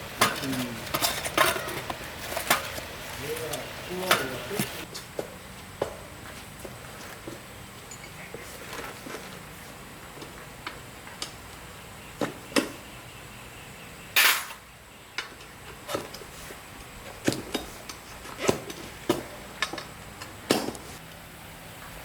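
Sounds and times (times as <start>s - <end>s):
metal tools clinking and knocking: 0.0s - 4.8s, 7.9s - 8.9s.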